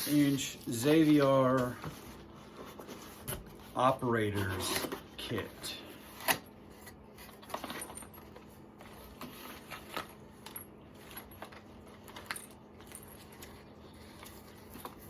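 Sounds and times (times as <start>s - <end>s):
faint steady hum: 0.0s - 15.0s
metal parts clicking and rattling: 9.4s - 15.0s.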